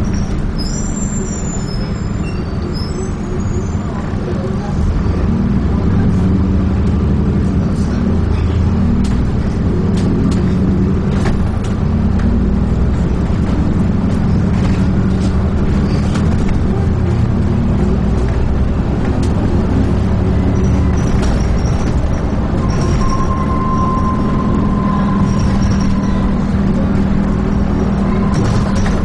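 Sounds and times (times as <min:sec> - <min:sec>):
bus engine drone: 0:00.0 - 0:29.0
body clicks and rattles: 0:08.4 - 0:23.2, 0:25.2 - 0:29.0.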